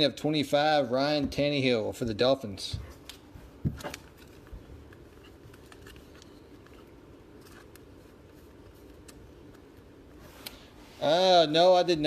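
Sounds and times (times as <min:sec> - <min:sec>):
low room hum: 0:00.0 - 0:12.0
card packaging clicks and rustles: 0:03.1 - 0:09.9.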